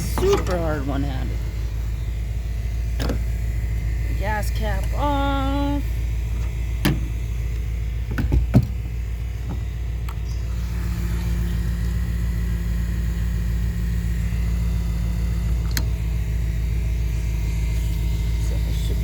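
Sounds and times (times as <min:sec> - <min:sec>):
fuel cap clicks and clunk: 0:00.0 - 0:00.6, 0:03.0 - 0:03.3, 0:06.4 - 0:08.8, 0:15.5 - 0:15.9
engine idling: 0:00.0 - 0:19.0.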